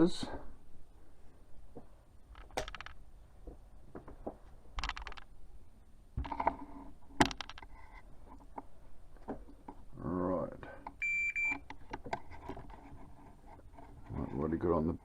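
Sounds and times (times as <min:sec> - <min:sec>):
small parts clicking and scraping: 0:02.3 - 0:03.0, 0:04.7 - 0:05.4, 0:06.2 - 0:08.8, 0:10.8 - 0:14.7.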